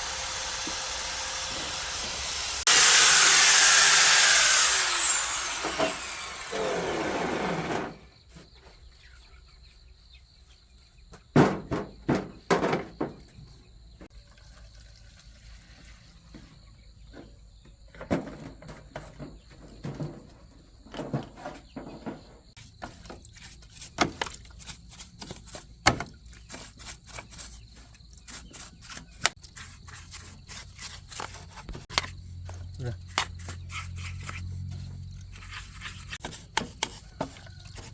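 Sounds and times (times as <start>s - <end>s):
power tool spinning down: 0.0s - 7.9s.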